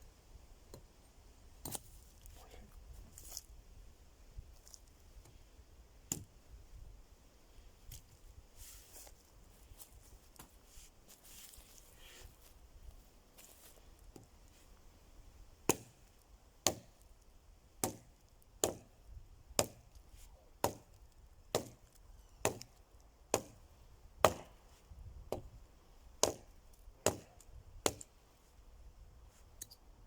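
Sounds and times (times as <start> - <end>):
wood being chopped: 6.1 - 6.3, 15.7 - 16.0, 16.6 - 17.0, 17.8 - 18.9, 19.6 - 19.9, 20.6 - 23.6, 24.2 - 24.6, 26.2 - 28.1.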